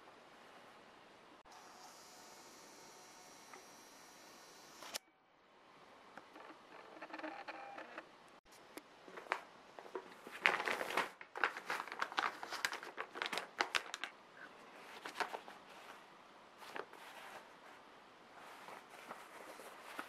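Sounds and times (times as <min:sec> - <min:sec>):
crinkling and rustling: 0:08.5 - 0:20.0.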